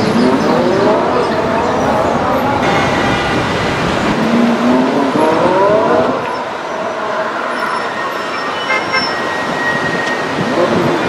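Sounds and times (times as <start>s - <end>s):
car engine accelerating: 0.0s - 7.6s
city traffic noise: 0.0s - 11.0s.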